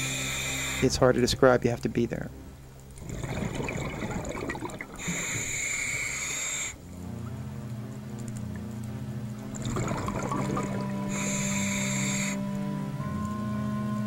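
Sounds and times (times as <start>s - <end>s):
regulator hissing inhale: 0.0s - 1.0s, 4.9s - 7.1s, 10.7s - 12.9s
low steady drone: 0.0s - 14.0s
exhaled bubbles rushing: 3.0s - 6.4s, 9.5s - 11.4s.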